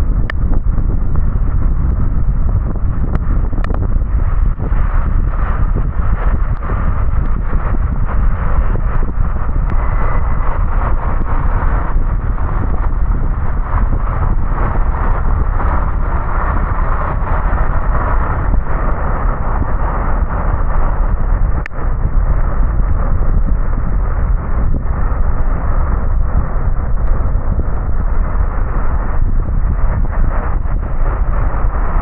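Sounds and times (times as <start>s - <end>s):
road and engine rumble: 0.0s - 32.0s
wind buffeting microphone: 0.0s - 32.0s.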